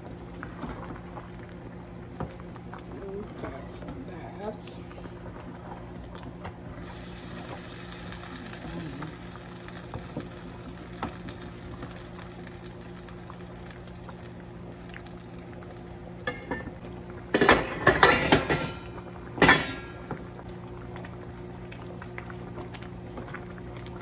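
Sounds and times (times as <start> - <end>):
cookware clattering: 16.3 - 20.0.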